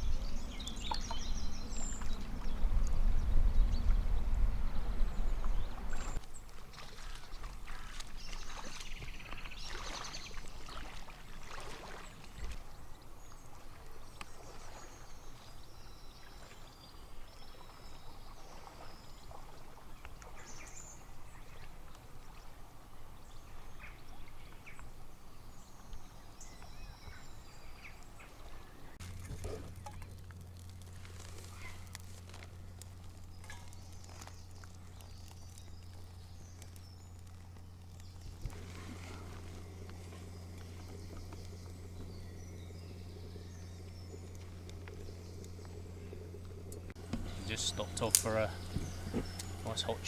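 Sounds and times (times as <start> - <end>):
low rumble: 0.0 - 6.2, 29.0 - 50.0
birds chirping: 0.0 - 30.6, 31.2 - 50.0
paddle splashing in water: 5.4 - 22.7, 33.3 - 42.2.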